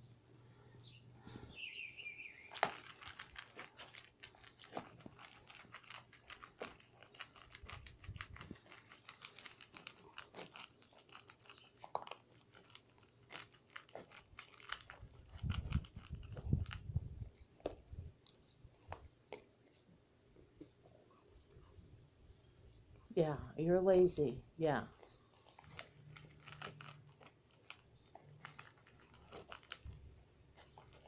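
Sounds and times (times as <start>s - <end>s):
puppy chewing food: 2.3s - 21.1s, 24.9s - 31.0s.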